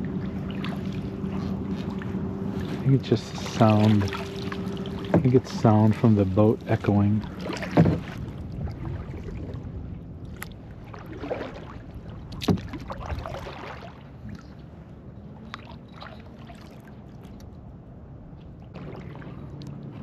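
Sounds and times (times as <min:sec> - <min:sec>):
paddle dipping and swishing: 0:00.0 - 0:20.0
paddle knocks: 0:03.4 - 0:09.5, 0:12.3 - 0:13.8.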